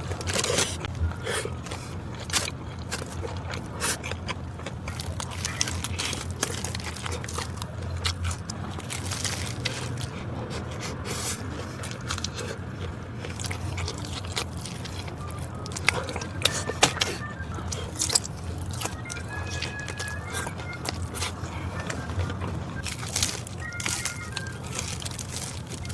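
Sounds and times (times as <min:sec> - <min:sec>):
person chewing crunchy food: 0:00.0 - 0:25.9.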